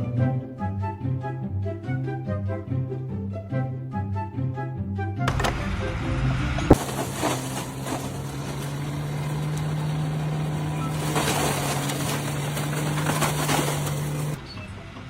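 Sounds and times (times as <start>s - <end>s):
machine engine humming: 6.7s - 14.4s.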